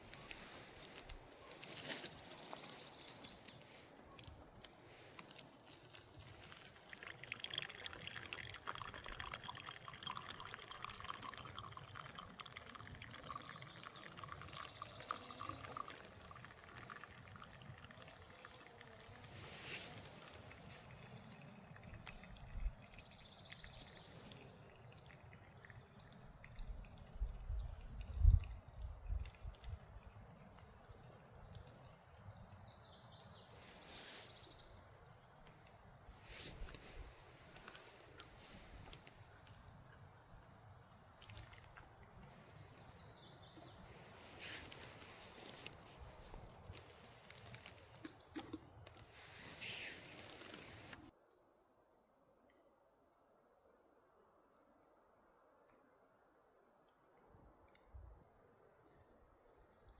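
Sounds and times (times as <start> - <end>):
faint forest background: 0.0 - 59.9
liquid pouring into container: 5.0 - 33.1, 35.0 - 51.1.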